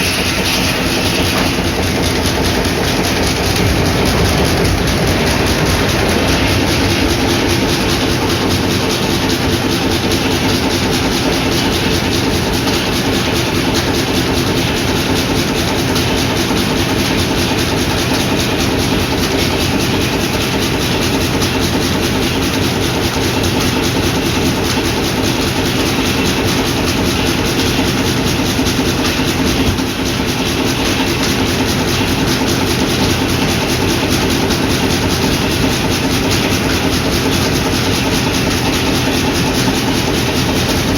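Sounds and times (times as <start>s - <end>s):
sawmill machinery running: 0.0s - 40.9s.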